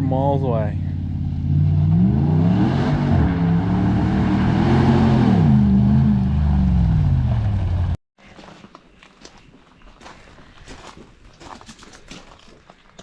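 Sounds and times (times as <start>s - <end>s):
truck engine revving: 0.7s - 8.0s.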